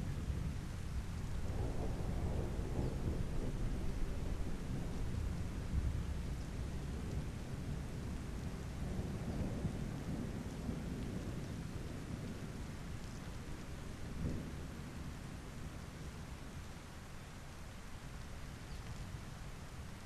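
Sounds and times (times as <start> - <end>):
steady rain falling: 0.0 - 20.0
distant thunder rumbling: 1.4 - 12.7.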